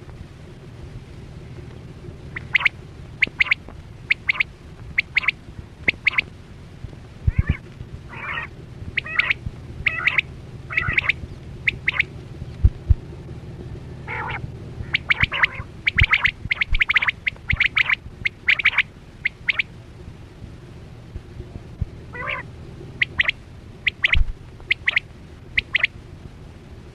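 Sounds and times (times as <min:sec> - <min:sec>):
steady low hum: 0:00.0 - 0:26.9
quail calling: 0:02.3 - 0:06.3, 0:07.3 - 0:12.1, 0:14.0 - 0:19.7, 0:22.1 - 0:25.9.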